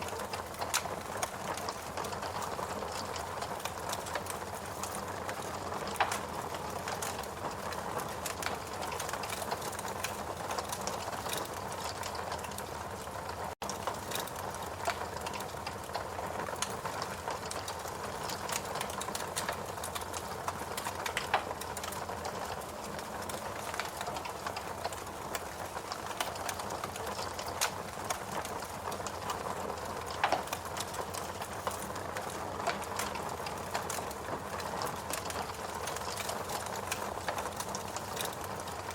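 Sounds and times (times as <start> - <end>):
fireplace crackling: 0.0 - 38.9.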